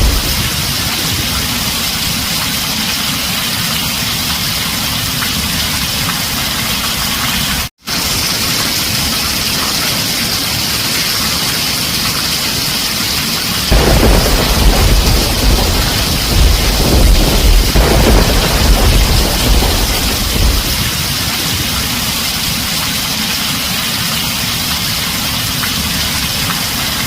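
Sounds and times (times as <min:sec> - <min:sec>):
thunder rumble: 0:00.0 - 0:02.5, 0:13.7 - 0:22.8
heavy rain on a tin roof: 0:00.0 - 0:27.0.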